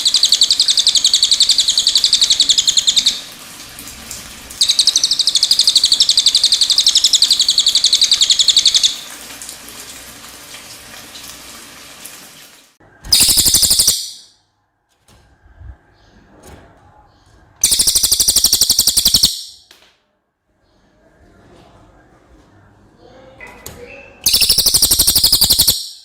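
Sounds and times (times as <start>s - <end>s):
parrot high-pitched trills: 0.0s - 3.3s, 4.6s - 9.0s, 13.1s - 14.3s, 17.6s - 19.6s, 24.2s - 26.0s
faint trickle of water: 3.0s - 4.8s, 8.7s - 12.8s.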